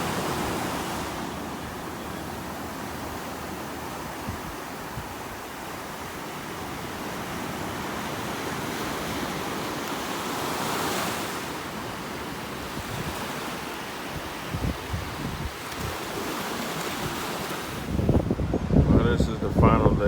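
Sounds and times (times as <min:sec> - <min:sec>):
ocean surf washing on beach: 0:00.0 - 0:20.0
wind buffeting microphone: 0:02.5 - 0:05.5, 0:12.6 - 0:13.3, 0:14.1 - 0:16.3, 0:17.8 - 0:20.0.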